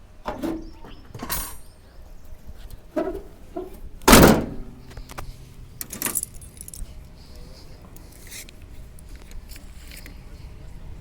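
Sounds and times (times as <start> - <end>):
loud ringing metallic clank: 3.0 - 4.9.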